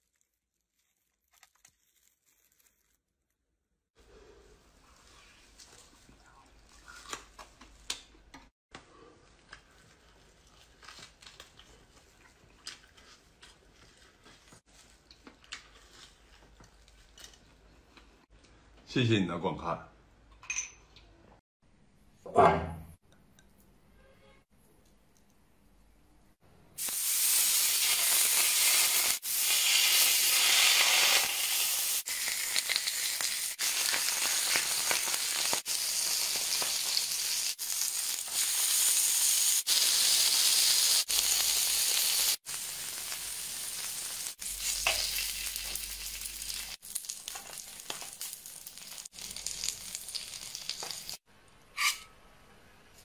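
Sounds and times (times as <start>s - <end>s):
fish sizzling on griddle: 26.8s - 51.2s.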